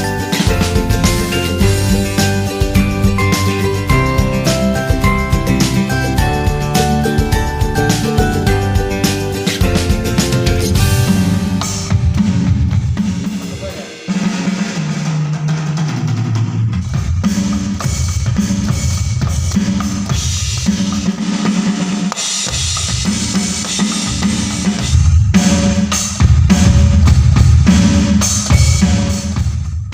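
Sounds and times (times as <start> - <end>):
song with bass line: 0.0 - 15.0
drum kit playing a beat: 0.0 - 29.9.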